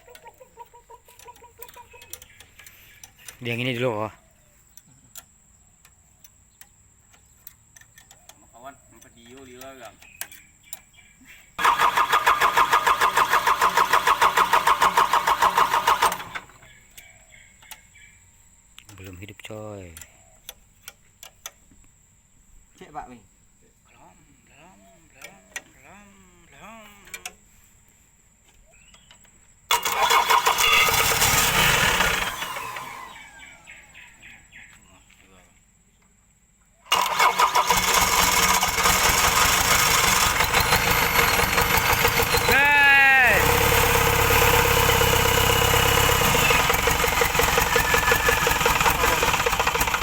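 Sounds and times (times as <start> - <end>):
starter motor cranking diesel engine: 11.6 - 17.0, 29.7 - 33.7, 36.9 - 50.0.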